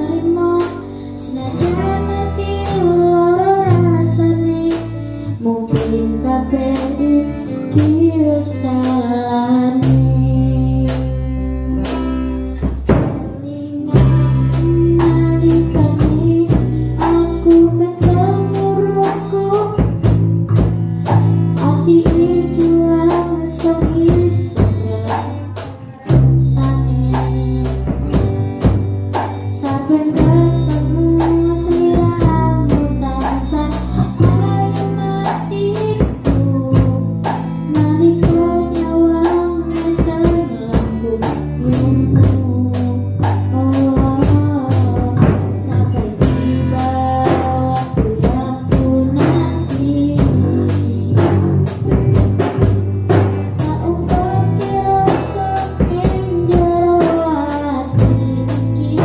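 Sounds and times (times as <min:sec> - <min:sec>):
bass: 0:00.0 - 0:59.0
instrumental melody: 0:00.0 - 0:59.0
drum beat: 0:51.2 - 0:54.6.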